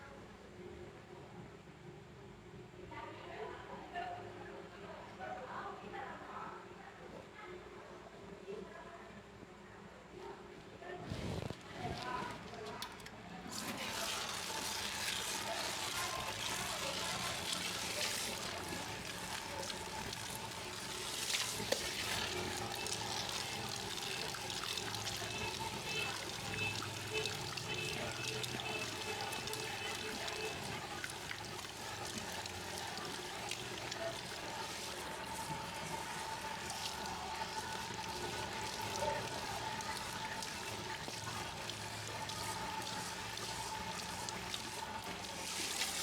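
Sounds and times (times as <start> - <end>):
running water rinsing hair: 11.4 - 46.0.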